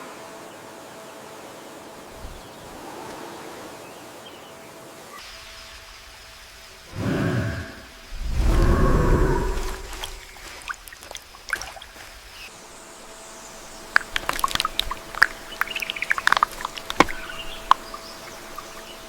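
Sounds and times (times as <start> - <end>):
birds chirping: 0.0 - 19.0
low rumble: 6.9 - 10.6.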